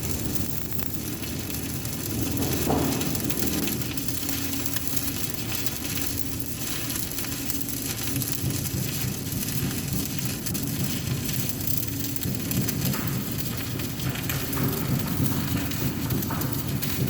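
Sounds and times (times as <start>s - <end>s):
arc welding hiss: 0.0s - 17.0s.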